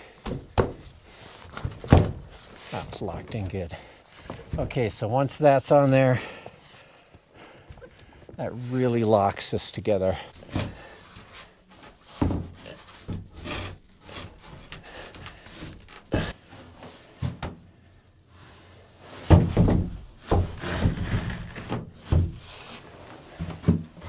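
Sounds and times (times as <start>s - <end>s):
wooden panels knocking and scraping: 0.2s - 3.6s, 10.4s - 17.7s, 19.1s - 24.0s.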